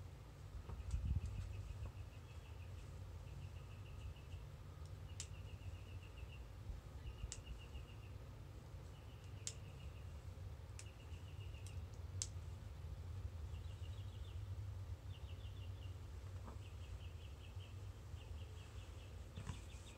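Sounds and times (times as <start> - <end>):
low steady rumble: 0.0 - 19.9
small bird trilled chirps: 0.8 - 8.2, 10.8 - 11.9.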